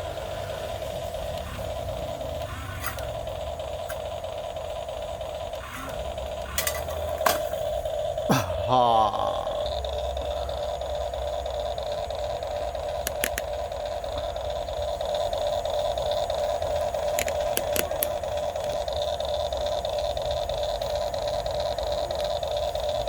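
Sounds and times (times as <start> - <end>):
electric motors whining: 0.0 - 8.2, 9.1 - 23.0
sharp clicks: 12.4 - 14.3, 16.3 - 18.6.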